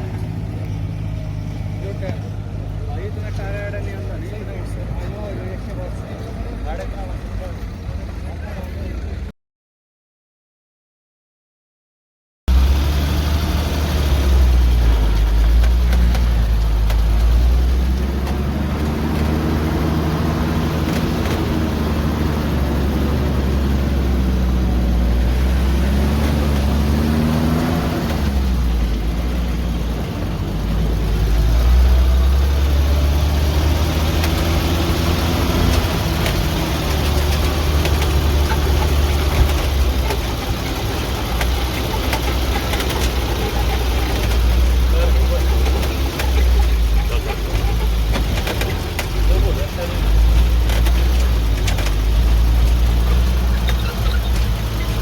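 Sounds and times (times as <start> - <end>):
truck engine running: 0.0 - 9.3, 12.5 - 55.0.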